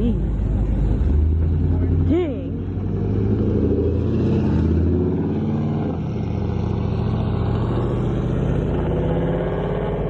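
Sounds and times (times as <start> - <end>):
car engine running: 0.0 - 4.1.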